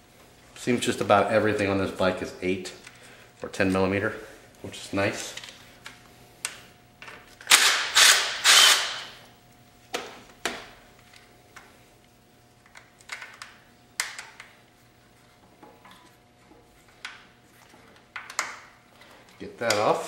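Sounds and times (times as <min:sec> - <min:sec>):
hand ratchet clicking: 0:07.5 - 0:09.1.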